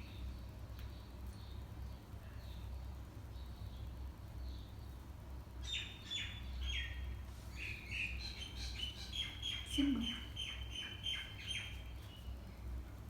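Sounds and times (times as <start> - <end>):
steady low hum: 0.0 - 13.0
small bird chirping: 5.6 - 12.4.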